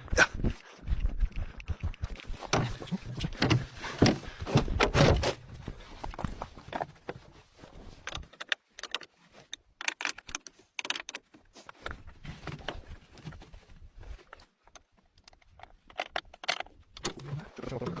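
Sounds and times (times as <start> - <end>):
irregular clinks and rattles: 7.9 - 13.4, 14.1 - 17.9.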